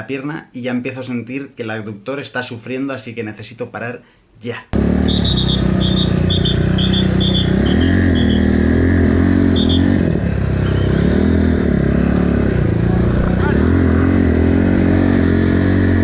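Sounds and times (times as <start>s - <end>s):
motorcycle engine revving: 4.8s - 16.0s.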